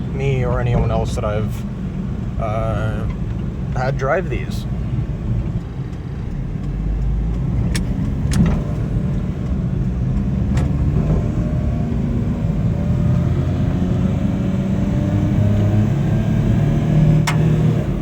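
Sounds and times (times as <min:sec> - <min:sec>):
road noise: 0:00.0 - 0:18.0
truck engine while driving: 0:00.0 - 0:18.0
sharp clicks in cab: 0:05.3 - 0:11.2, 0:17.2 - 0:17.6.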